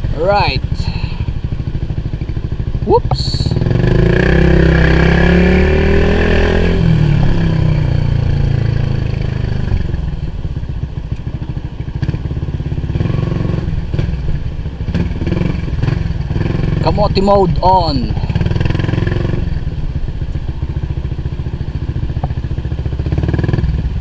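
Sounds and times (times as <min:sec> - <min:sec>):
scooter engine pulling away: 0:18.2 - 0:24.0.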